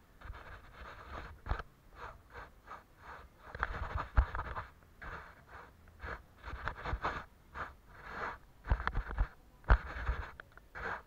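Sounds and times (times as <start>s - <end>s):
paintbrush swishing on paper: 0.2s - 11.0s.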